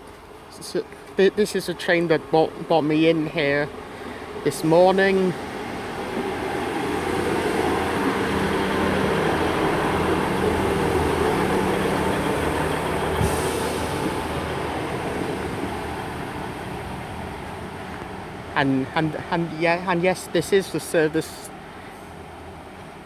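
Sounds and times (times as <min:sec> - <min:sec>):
train engine hum: 0:00.0 - 0:23.0
wheels rumbling on rails: 0:00.0 - 0:23.0
short hiss: 0:13.2 - 0:14.1.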